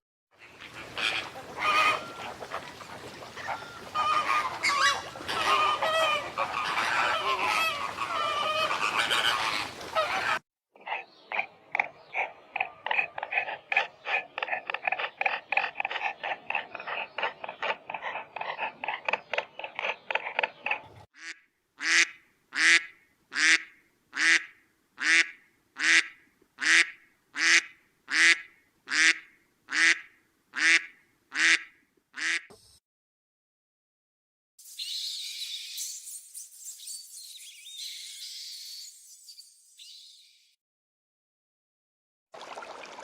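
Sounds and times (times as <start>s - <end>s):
animal calls: 3.4s - 21.0s.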